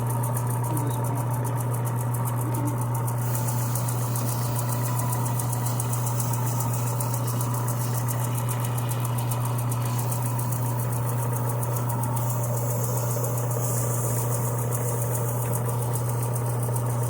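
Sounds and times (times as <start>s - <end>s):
low motor hum: 0.0s - 17.0s
fluttering hiss: 3.2s - 8.1s, 9.8s - 16.3s.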